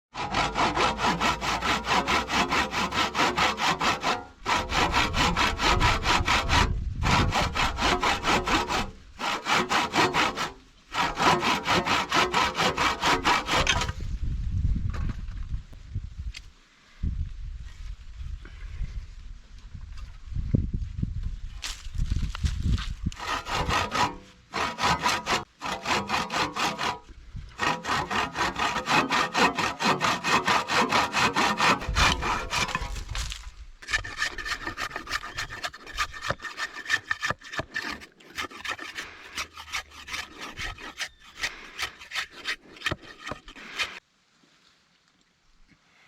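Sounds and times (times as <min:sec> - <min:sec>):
hand saw cutting wood: 0:00.1 - 0:14.0, 0:23.1 - 0:44.0.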